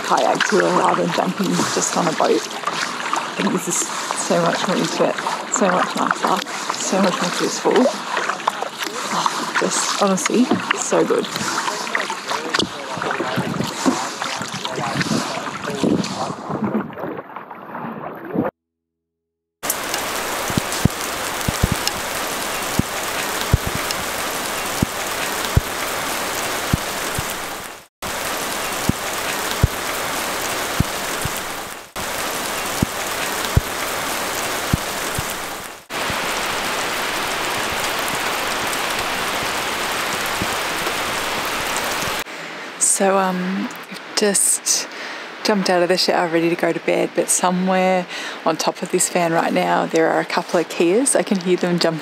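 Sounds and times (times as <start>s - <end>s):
kayak paddle in water: 0.0s - 18.5s, 19.6s - 42.6s
steady rain in forest: 6.4s - 10.0s, 19.6s - 42.9s
heavy single raindrops: 19.6s - 42.2s.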